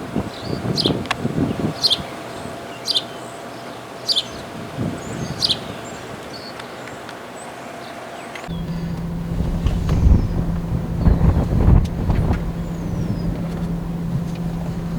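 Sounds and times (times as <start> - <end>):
wind on microphone: 0.0 - 2.7, 4.4 - 6.4, 8.5 - 14.9
songbird calling: 0.3 - 14.9
low vehicle hum: 8.5 - 14.9.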